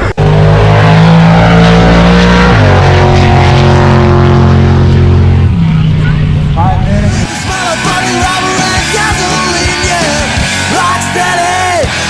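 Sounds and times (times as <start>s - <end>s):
car engine at steady revs: 0.0s - 7.4s.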